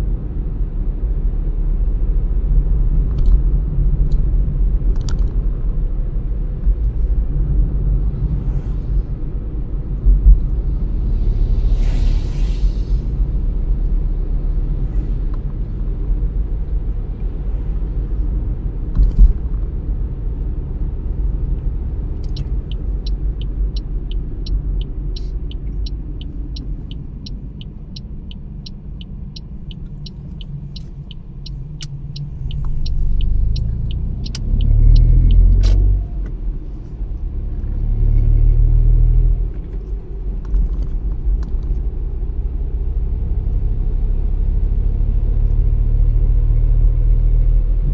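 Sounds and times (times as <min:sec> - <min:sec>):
car engine and tyre rumble: 0:00.0 - 0:47.9
steady ticking: 0:22.2 - 0:35.5.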